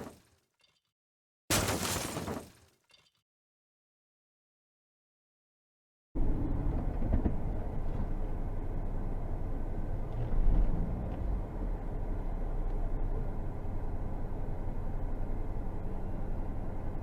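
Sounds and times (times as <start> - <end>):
moving vehicle rumble: 6.2 - 17.0.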